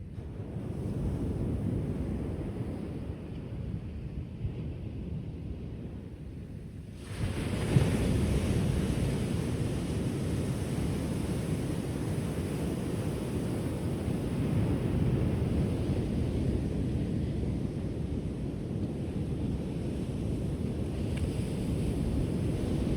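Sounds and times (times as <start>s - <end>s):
rushing surf wash: 19.6s - 22.9s.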